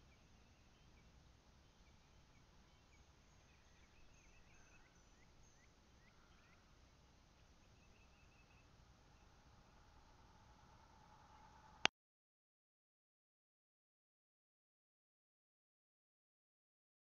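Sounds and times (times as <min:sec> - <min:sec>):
faint high bird chirps: 0:00.0 - 0:11.9.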